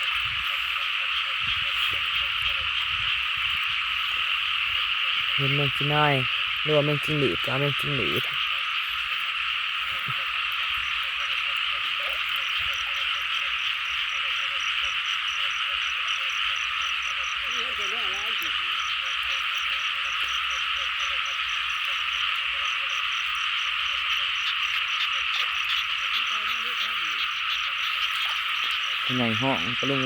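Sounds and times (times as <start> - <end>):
fast high pulsing frog calls: 0.0 - 30.0
frogs croaking: 0.0 - 30.0.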